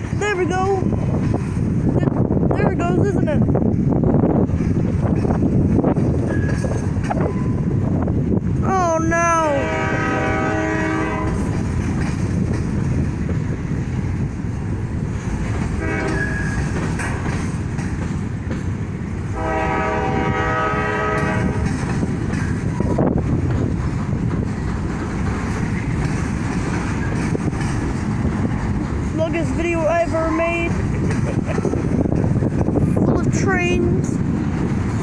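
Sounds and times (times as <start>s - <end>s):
train wheels rumbling on rails: 0.0s - 35.0s
train horn: 9.5s - 11.5s, 15.8s - 16.5s, 19.3s - 21.7s.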